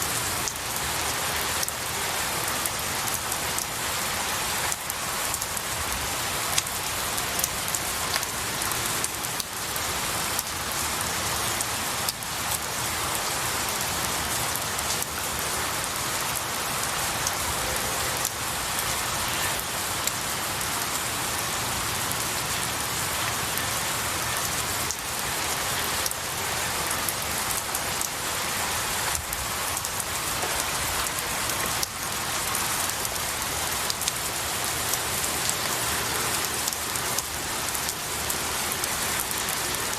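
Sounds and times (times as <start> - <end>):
rain falling on trees: 0.0 - 39.9.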